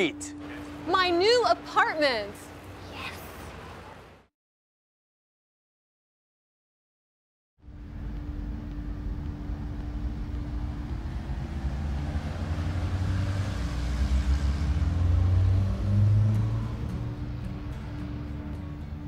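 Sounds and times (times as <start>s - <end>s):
street traffic: 0.0s - 4.3s, 7.6s - 19.0s.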